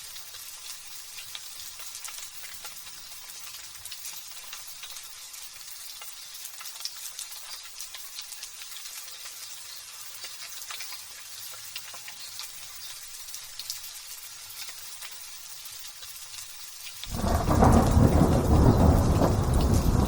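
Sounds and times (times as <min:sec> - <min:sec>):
light drizzle pattering: 0:00.0 - 0:20.0
loud thunder rumble: 0:17.1 - 0:20.0.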